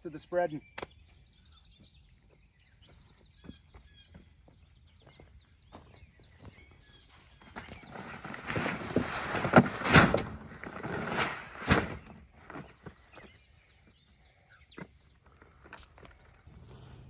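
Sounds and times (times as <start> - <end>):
faint bird chirps: 0.0 - 8.4
rustling: 7.7 - 13.0.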